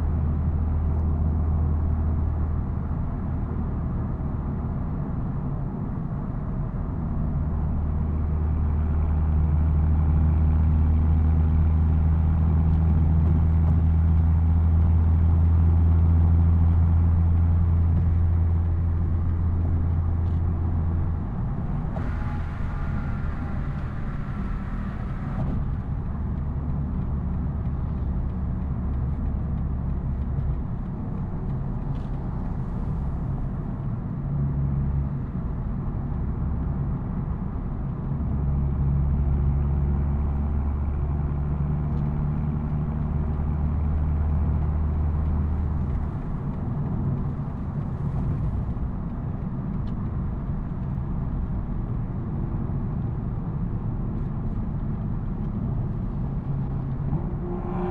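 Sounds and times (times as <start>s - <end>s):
road and tyre noise: 0.0s - 57.9s
car exhaust drone: 13.2s - 30.6s, 54.4s - 57.9s.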